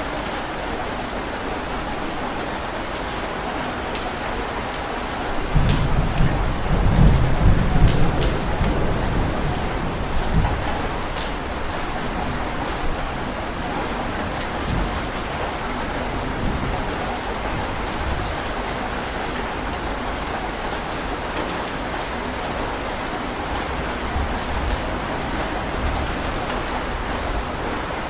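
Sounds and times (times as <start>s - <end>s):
heavy rain falling: 0.0s - 28.0s
low rumble of thunder: 5.4s - 18.9s, 23.5s - 28.0s.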